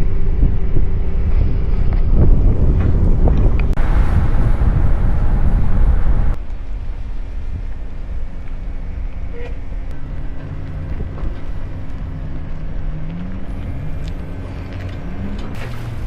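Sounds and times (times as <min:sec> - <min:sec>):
motor engine speeding up: 0:00.0 - 0:06.4, 0:10.0 - 0:16.0
wind noise: 0:00.0 - 0:16.0.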